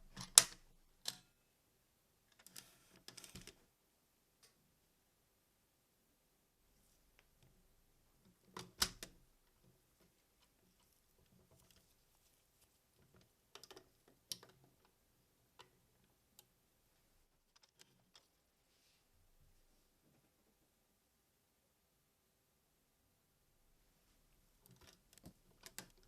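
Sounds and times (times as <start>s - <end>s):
plastic toy parts clicking: 0.0s - 1.2s, 2.3s - 3.6s, 8.5s - 9.1s, 13.1s - 15.0s, 24.6s - 26.0s.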